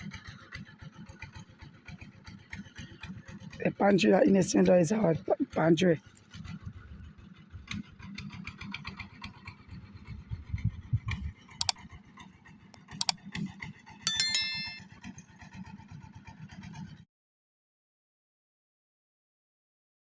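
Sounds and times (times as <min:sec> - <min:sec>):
high ringing chime: 0:14.1 - 0:14.8.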